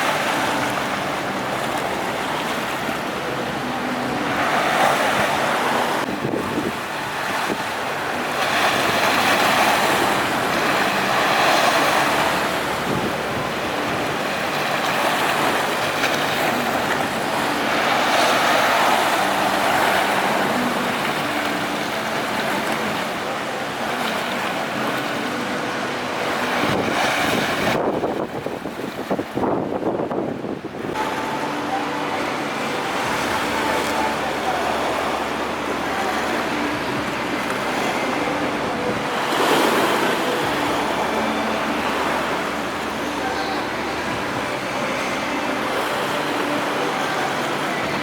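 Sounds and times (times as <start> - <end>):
sea waves surging: 0.0 - 48.0
strong wind: 0.0 - 48.0.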